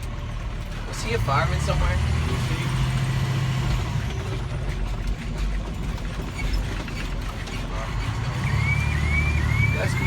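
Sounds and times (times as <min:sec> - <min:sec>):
truck engine rumble: 0:00.0 - 0:10.0
clicks and rattles in cab: 0:03.7 - 0:08.1.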